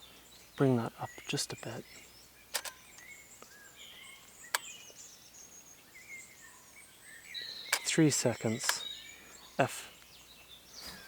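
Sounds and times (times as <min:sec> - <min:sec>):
birds singing faintly: 0:00.0 - 0:11.0
sharp clicks: 0:02.5 - 0:03.1, 0:04.5 - 0:04.9, 0:07.7 - 0:08.9.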